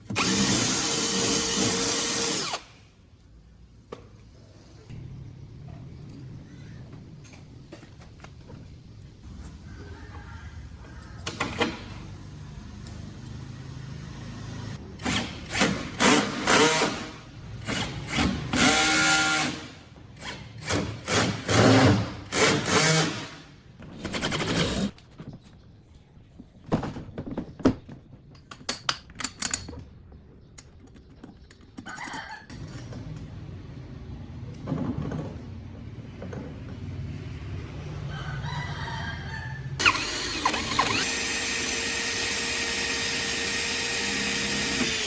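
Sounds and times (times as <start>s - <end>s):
power tool bursts: 0.1s - 2.8s, 39.8s - 45.0s.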